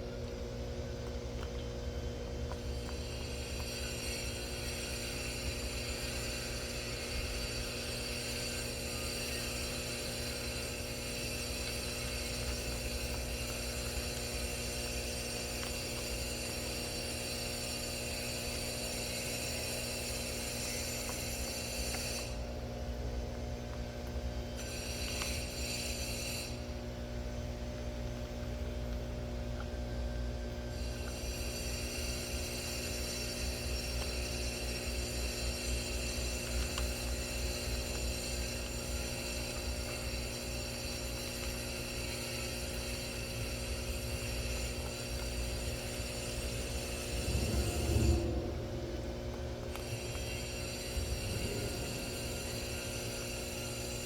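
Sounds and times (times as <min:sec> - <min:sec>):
electrical hum: 0:00.0 - 0:54.0
high fixed whines: 0:46.7 - 0:54.0.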